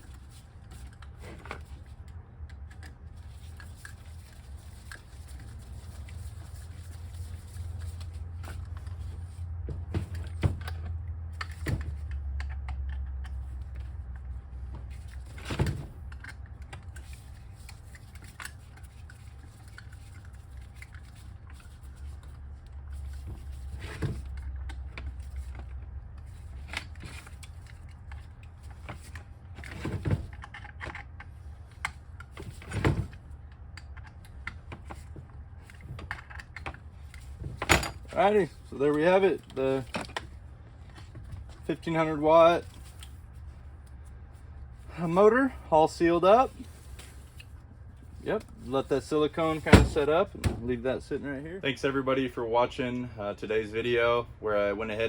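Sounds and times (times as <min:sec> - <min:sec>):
low steady rumble: 0:00.0 - 0:55.0
hand tools and metal parts clinking: 0:36.3 - 0:40.2.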